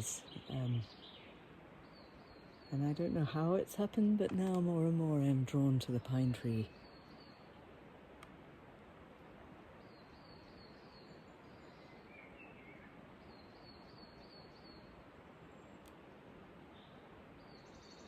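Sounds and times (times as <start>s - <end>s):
faint steady hiss: 0.0s - 18.0s
small bird calling: 9.8s - 15.9s.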